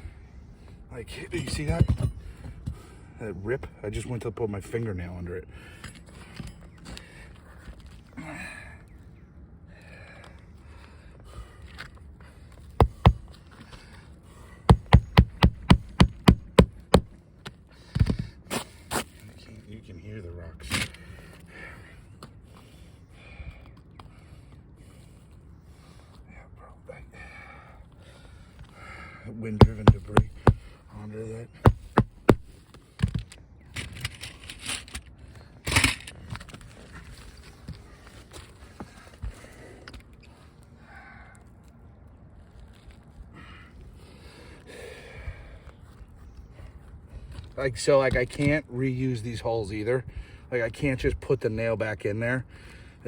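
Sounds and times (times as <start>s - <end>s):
hammer striking roof: 12.8s - 13.3s, 14.7s - 17.2s, 29.6s - 30.7s, 31.6s - 32.6s
shingle grit crunching and scraping: 29.5s - 39.6s.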